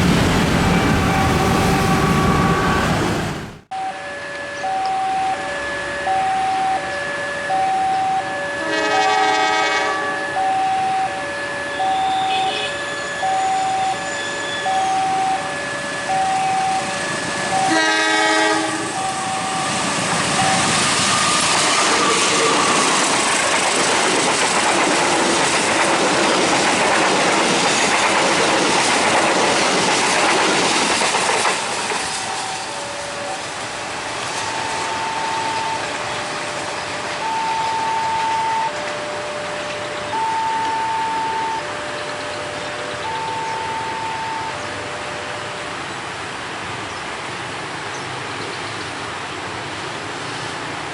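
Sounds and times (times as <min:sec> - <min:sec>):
train passing: 0:00.0 - 0:50.9
two-tone electronic warning alarm: 0:00.6 - 0:03.0, 0:03.7 - 0:23.1, 0:31.9 - 0:33.6, 0:34.3 - 0:45.7
train horn blast: 0:00.7 - 0:05.0, 0:08.5 - 0:14.9, 0:17.5 - 0:19.8, 0:20.4 - 0:22.9.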